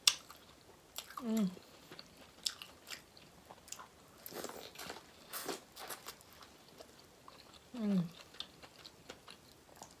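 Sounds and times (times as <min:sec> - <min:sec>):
person humming mm: 0:07.8 - 0:08.2.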